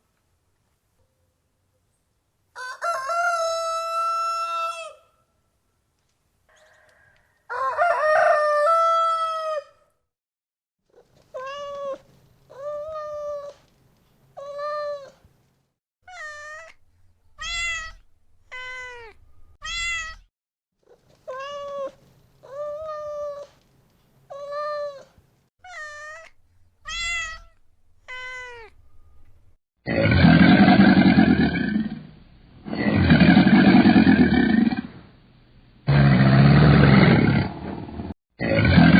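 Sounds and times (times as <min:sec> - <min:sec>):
cat meowing: 0:11.3 - 0:13.6, 0:16.1 - 0:16.8, 0:17.4 - 0:20.3, 0:21.2 - 0:23.5, 0:24.3 - 0:28.8.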